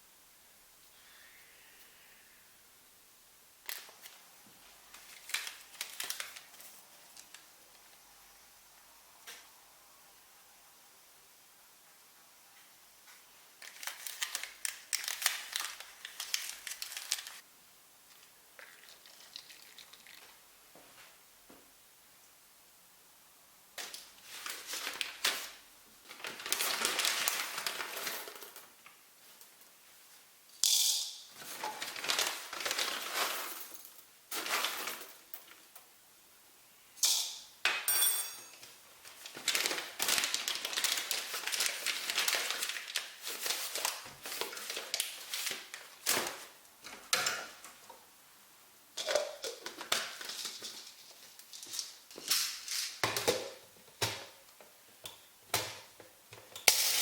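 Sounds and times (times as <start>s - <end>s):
objects rustling and scraping: 23.8s - 30.3s, 31.3s - 35.6s, 49.0s - 54.4s
china or glass clinking: 37.0s - 38.6s.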